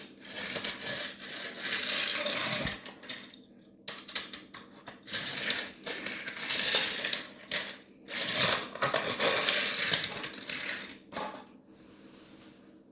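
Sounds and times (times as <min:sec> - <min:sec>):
toy trains clattering on track: 0:00.0 - 0:11.4.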